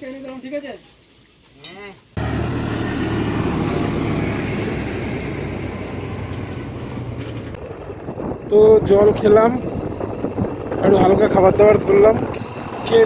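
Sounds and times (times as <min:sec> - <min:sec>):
motorcycle engine running: 0:02.2 - 0:13.0
wind noise on microphone: 0:05.2 - 0:13.0.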